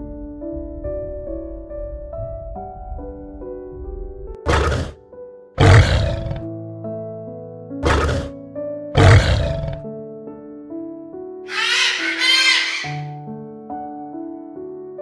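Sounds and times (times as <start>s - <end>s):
gentle piano music: 0.0s - 4.4s, 6.5s - 7.8s, 8.4s - 8.9s, 9.8s - 11.4s, 13.1s - 15.0s
large animal roaring: 4.5s - 5.0s, 5.6s - 6.5s, 7.8s - 8.3s, 9.0s - 9.8s, 11.5s - 13.1s.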